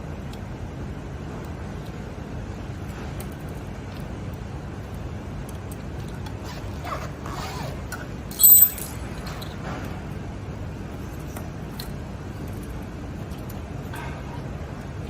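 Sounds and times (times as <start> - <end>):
low background noise: 0.0 - 15.0
loud high-pitched squeak: 8.3 - 9.0.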